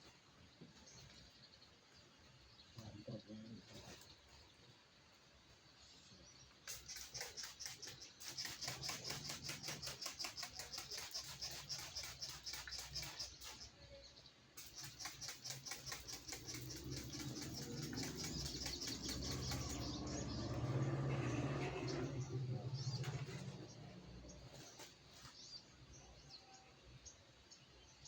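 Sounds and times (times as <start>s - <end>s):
bird making rapid sharp calls: 6.6s - 13.7s, 14.6s - 20.4s.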